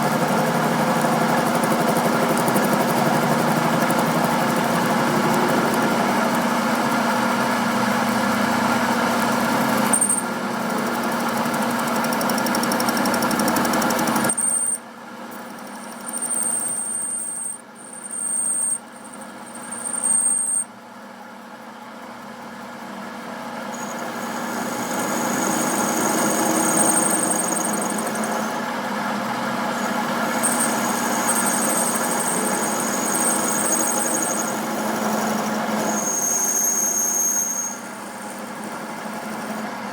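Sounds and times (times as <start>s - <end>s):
thin high whine: 14.3s - 20.8s, 23.7s - 39.8s
machine running: 23.7s - 39.9s.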